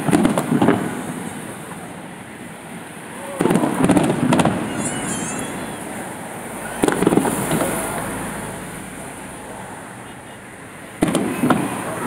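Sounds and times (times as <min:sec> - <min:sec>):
fireworks bangs and crackles: 0:00.0 - 0:08.6, 0:10.8 - 0:12.0
high wavering firework whistle: 0:03.2 - 0:07.7.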